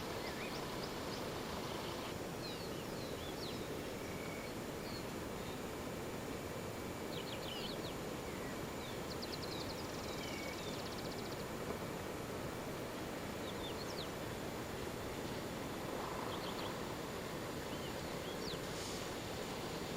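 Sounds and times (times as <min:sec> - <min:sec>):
wild birds calling: 0:15.7 - 0:19.0.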